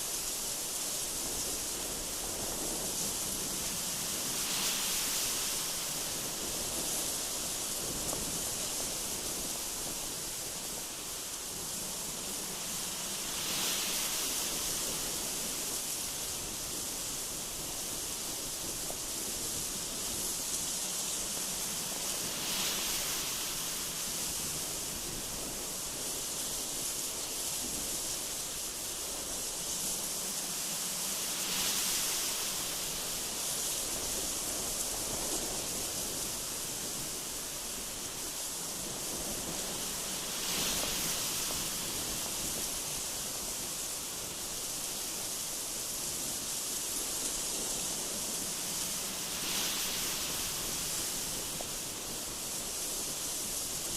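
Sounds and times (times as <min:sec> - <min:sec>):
strong gusty wind: 0:00.0 - 0:53.9.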